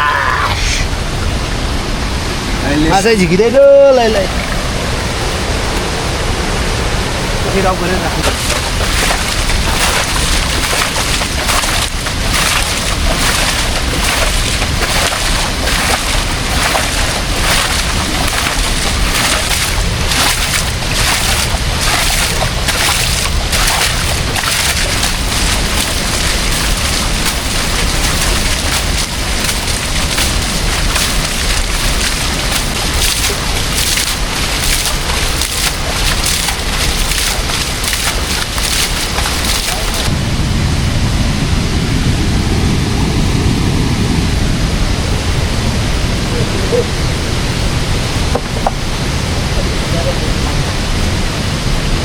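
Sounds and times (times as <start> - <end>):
river water rushing: 0.0 - 40.2.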